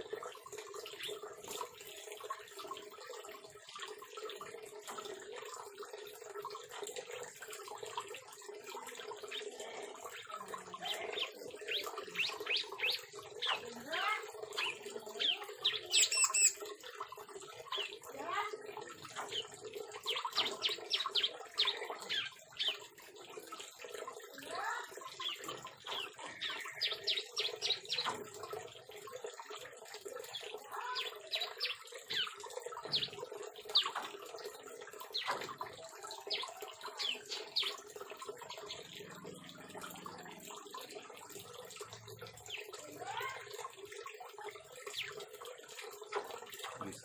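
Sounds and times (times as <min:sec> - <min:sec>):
birds chirping: 0:08.7 - 0:23.3, 0:24.0 - 0:28.6, 0:30.2 - 0:40.5.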